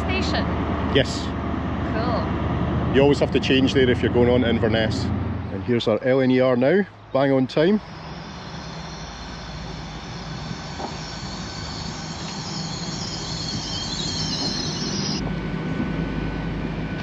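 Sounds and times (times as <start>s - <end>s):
train rumble: 0.0s - 17.0s
brake and wheel squeal: 6.3s - 15.2s.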